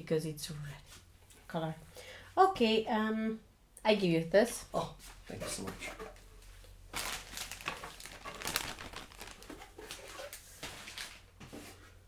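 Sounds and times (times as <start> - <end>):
packaging crinkling: 6.9 - 11.2.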